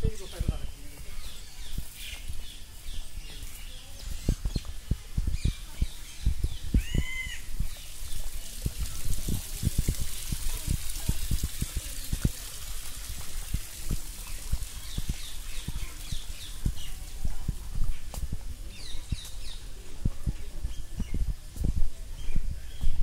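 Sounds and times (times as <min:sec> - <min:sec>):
birds calling: 0:00.0 - 0:08.9, 0:13.8 - 0:21.6
low thumps on microphone: 0:00.0 - 0:12.4, 0:13.5 - 0:23.0.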